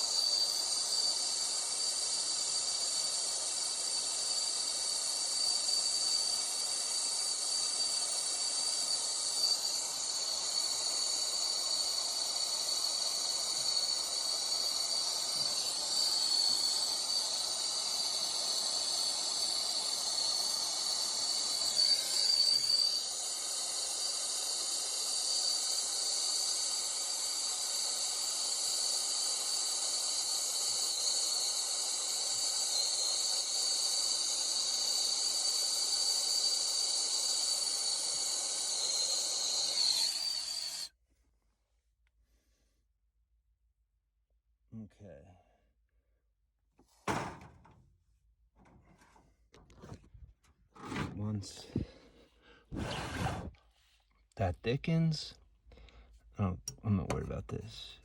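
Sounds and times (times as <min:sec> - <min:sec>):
gas flutter: 0:00.0 - 0:40.9, 0:50.9 - 0:53.7
gas hissing: 0:00.0 - 0:41.0, 0:50.8 - 0:53.6.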